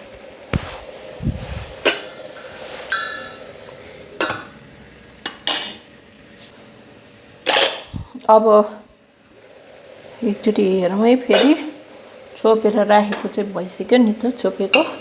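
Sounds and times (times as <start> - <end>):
metal pots and utensils clinking: 2.4 - 3.4.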